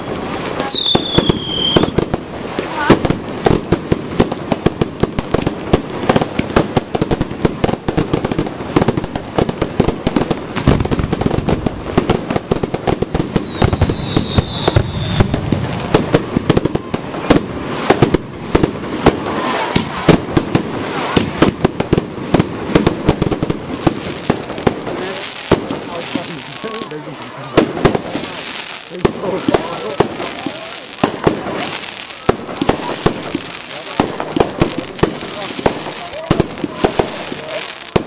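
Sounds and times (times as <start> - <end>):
high firework whistle: 0.0 - 2.2, 13.0 - 17.4
fireworks cracks and bangs: 0.0 - 38.0.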